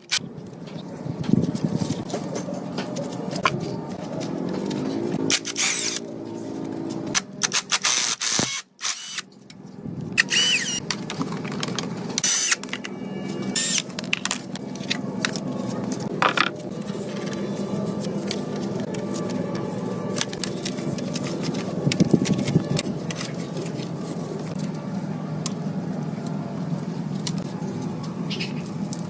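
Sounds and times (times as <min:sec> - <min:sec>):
short tool whirs: 0:05.3 - 0:06.1.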